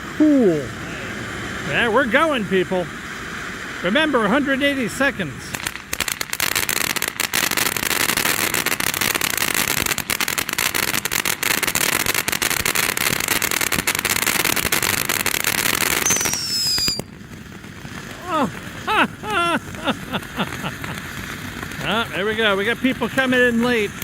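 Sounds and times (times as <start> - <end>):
firework crackling and popping: 0.0 - 24.0
falling whistle: 16.0 - 17.1.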